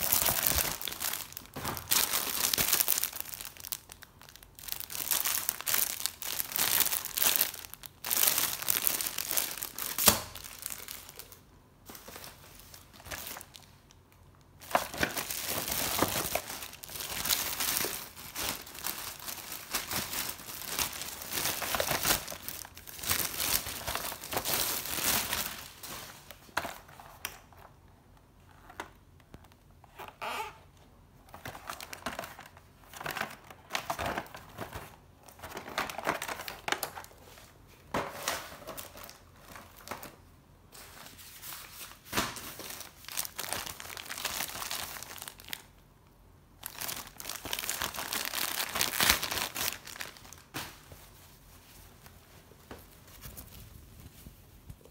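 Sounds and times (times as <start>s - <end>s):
plastic packaging crinkling: 0.0s - 27.8s, 31.2s - 40.2s, 40.8s - 45.8s, 46.6s - 54.9s.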